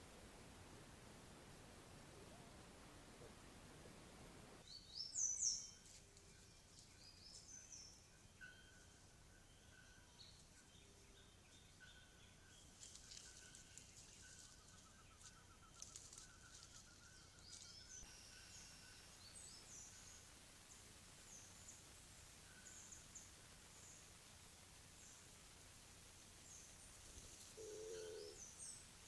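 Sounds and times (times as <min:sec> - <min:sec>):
bird trill: 0:27.6 - 0:28.8.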